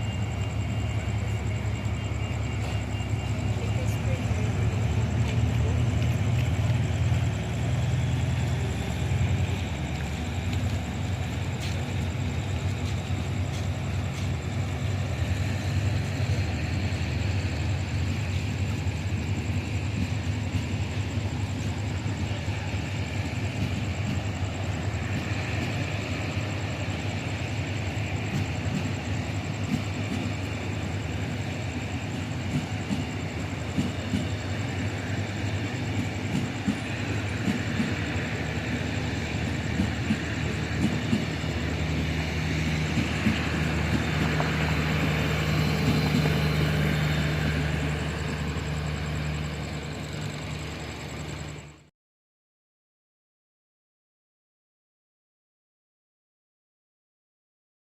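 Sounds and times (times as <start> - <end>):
diesel train engine drone: 0.0 - 51.9
wheels clicking over rail joints: 24.9 - 49.4.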